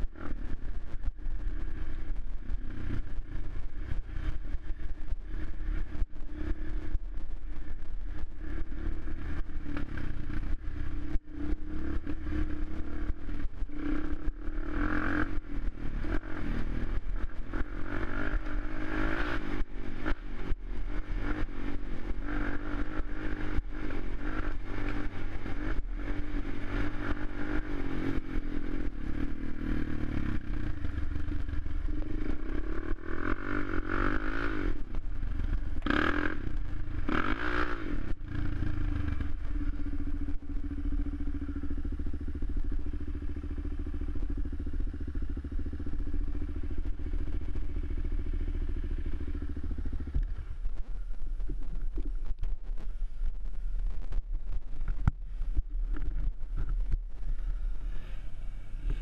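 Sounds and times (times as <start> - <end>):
quad bike engine revving: 8.4 - 50.4.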